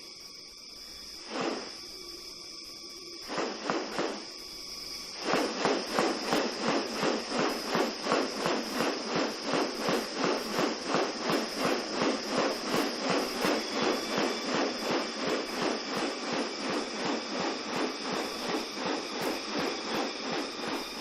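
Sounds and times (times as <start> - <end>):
high-pitched insect drone: 0.0 - 21.0
pulsing rasping sound: 5.2 - 21.0.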